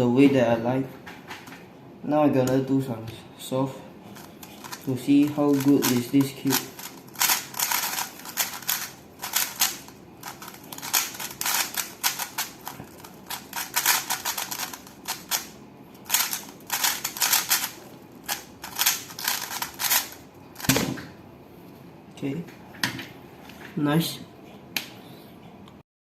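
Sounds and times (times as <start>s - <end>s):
puzzle cube plastic clicks: 5.5s - 20.8s.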